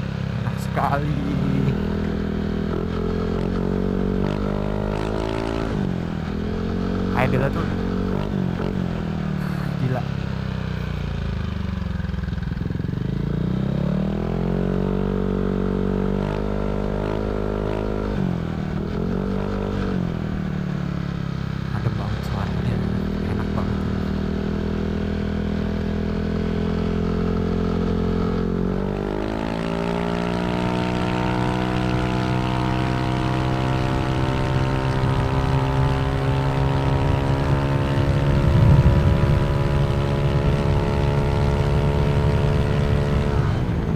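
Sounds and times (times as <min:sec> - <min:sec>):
scooter engine revving: 0:00.0 - 0:20.3.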